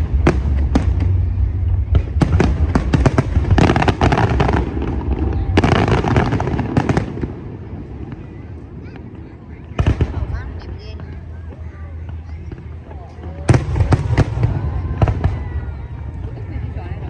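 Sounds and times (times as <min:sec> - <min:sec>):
deep rumble: 0:00.0 - 0:08.8
fireworks bangs and crackling: 0:00.0 - 0:17.0.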